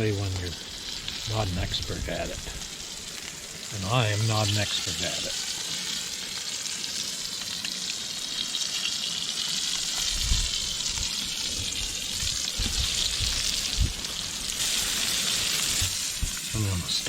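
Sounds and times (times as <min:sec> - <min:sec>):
fish sizzling in a pan: 0:00.0 - 0:17.0
wind rumbling on microphone: 0:01.3 - 0:02.6, 0:10.0 - 0:14.1.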